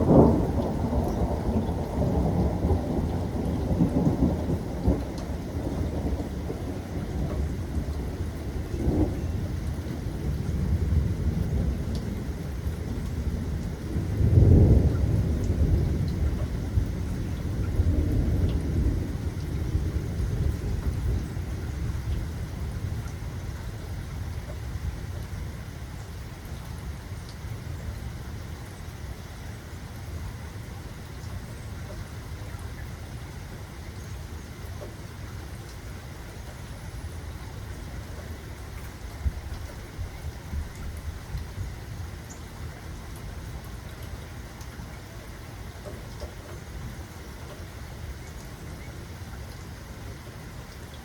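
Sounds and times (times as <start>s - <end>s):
rolling thunder: 0.0s - 23.1s
rain falling: 0.0s - 51.0s.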